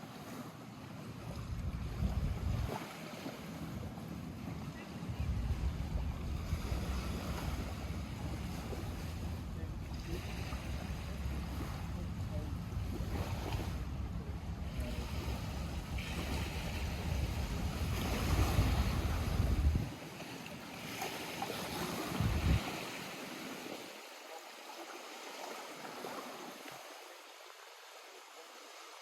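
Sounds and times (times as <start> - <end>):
lake water lapping at shore: 0.0 - 29.0
wind rumble on microphone: 1.2 - 20.0, 22.0 - 23.0.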